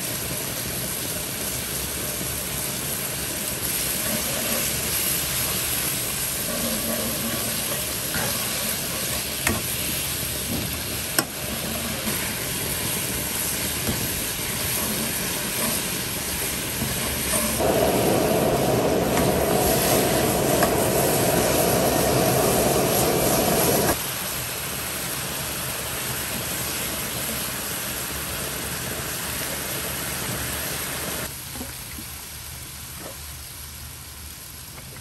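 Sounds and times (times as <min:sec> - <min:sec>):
food sizzling in oil: 0:00.0 - 0:34.7
steady rushing sound: 0:17.6 - 0:24.0.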